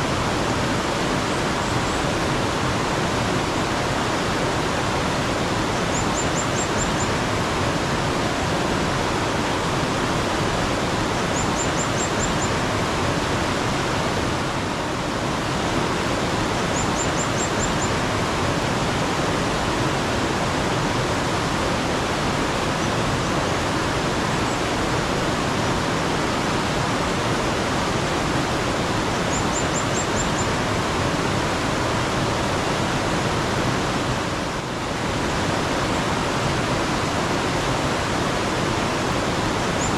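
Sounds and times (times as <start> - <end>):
stream running water: 0.0 - 39.9
small bird chirping: 11.3 - 12.5, 16.7 - 17.9, 29.3 - 30.5.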